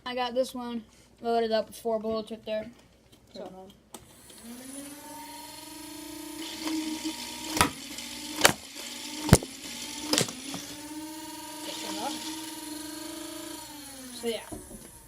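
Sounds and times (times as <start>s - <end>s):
toy gun electric motor whirring: 4.0s - 15.0s
foam darts firing cracks: 7.5s - 7.8s, 8.4s - 10.7s.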